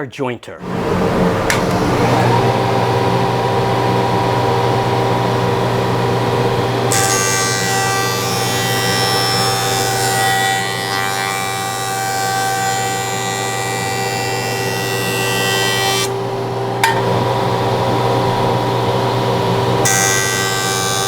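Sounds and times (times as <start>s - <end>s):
jointer motor hum and whine: 0.6s - 21.0s.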